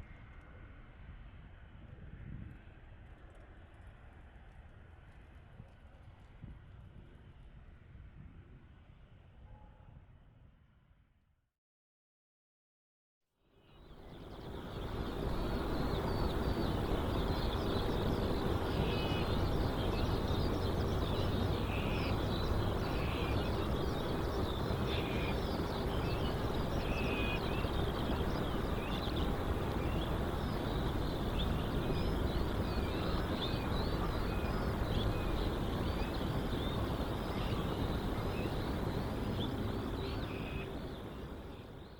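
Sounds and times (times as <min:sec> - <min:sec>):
faint hum: 0:13.6 - 0:41.9
birds chirping and twittering: 0:13.8 - 0:41.9
low outdoor rumble: 0:14.0 - 0:41.9.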